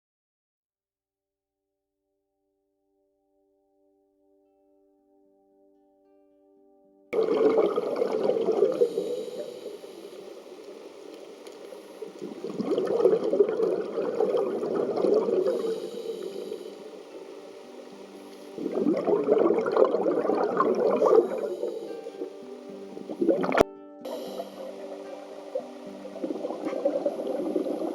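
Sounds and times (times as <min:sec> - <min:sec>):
exhaled air bubbling underwater: 0:07.2 - 0:27.9.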